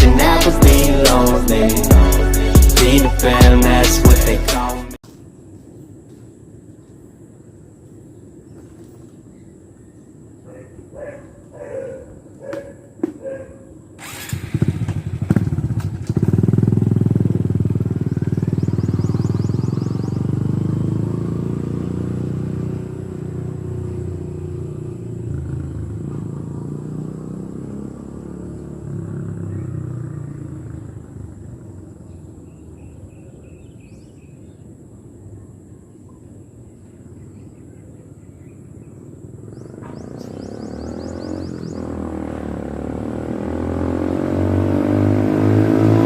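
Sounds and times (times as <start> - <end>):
motorcycle engine accelerating: 0.0 - 5.0, 14.0 - 32.2, 39.4 - 46.0.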